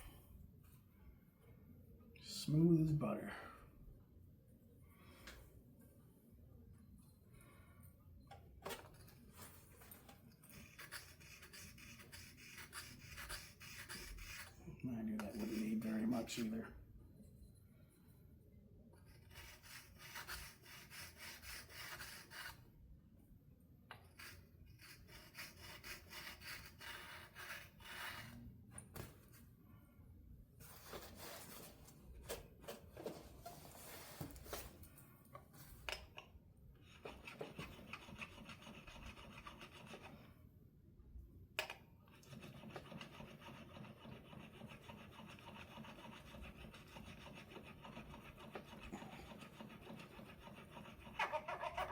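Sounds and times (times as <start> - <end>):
file rubbing on guitar frets: 10.6 - 14.5, 15.1 - 16.5, 19.3 - 22.6, 42.3 - 51.9.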